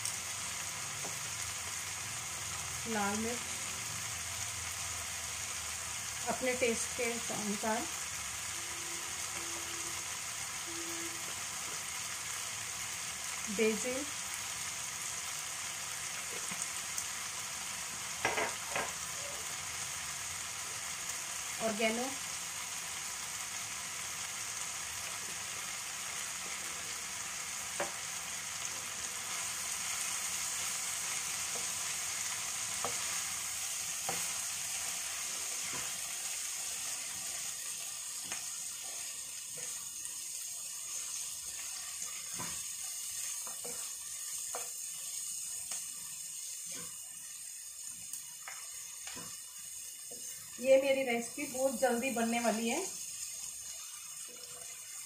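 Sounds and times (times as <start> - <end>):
vegetables sizzling in a frying pan: 0.0 - 55.0
spatula tapping a pan: 18.2 - 19.0, 27.7 - 28.0, 48.4 - 49.4.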